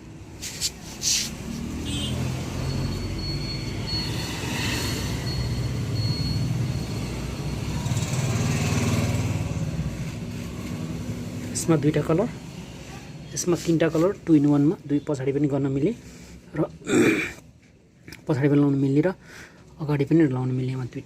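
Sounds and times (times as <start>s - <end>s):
vehicle engine humming: 0.0s - 11.6s.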